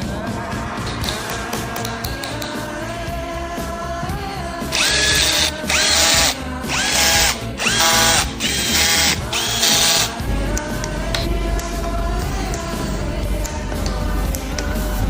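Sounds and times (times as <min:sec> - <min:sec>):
background music: 0:00.0 - 0:15.0
power drill spinning up: 0:04.7 - 0:10.2.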